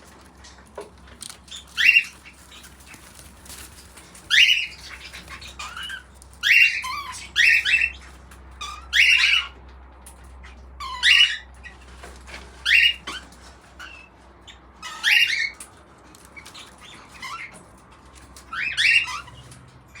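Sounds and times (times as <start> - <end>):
cockatiel squawking: 1.5 - 3.3, 4.2 - 8.0, 8.6 - 9.6, 10.8 - 11.5, 12.6 - 15.6, 18.4 - 19.5.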